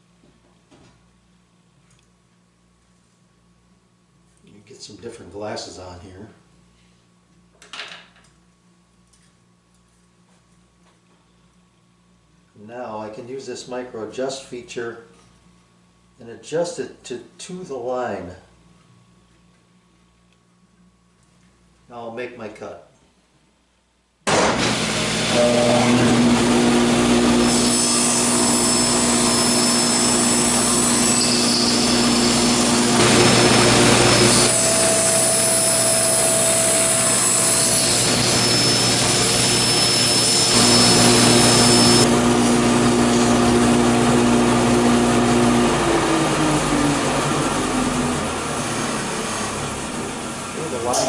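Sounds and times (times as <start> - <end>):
table saw cutting wood: 24.3 - 51.0.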